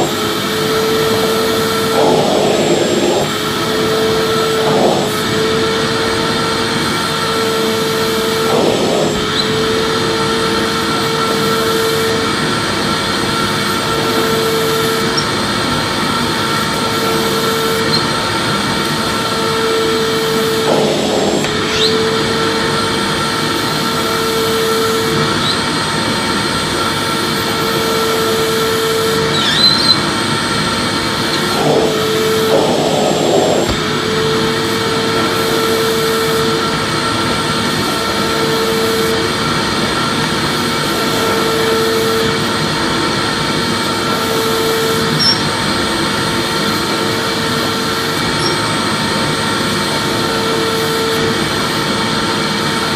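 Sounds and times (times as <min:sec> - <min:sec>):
vacuum cleaner running: 0:00.0 - 0:52.9.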